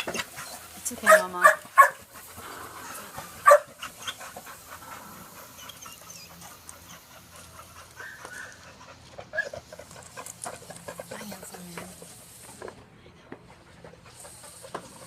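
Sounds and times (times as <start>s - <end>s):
quieter dog sounds: 0.0s - 15.0s
dog barking: 1.0s - 2.0s, 3.4s - 3.7s.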